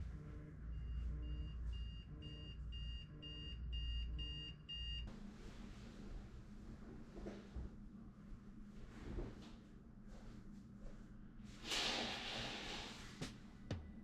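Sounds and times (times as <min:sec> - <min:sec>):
electronic alarm beeping: 0:00.7 - 0:05.1.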